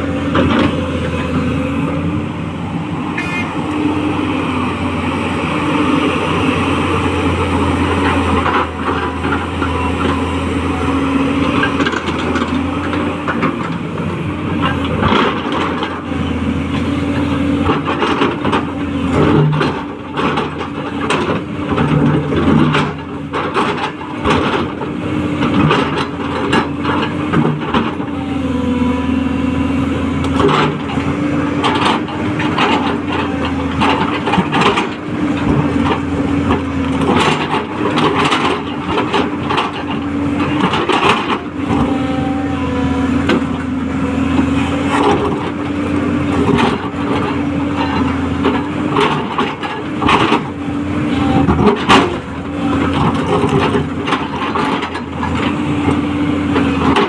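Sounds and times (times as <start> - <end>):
excavator engine whine: 0.0 - 57.0.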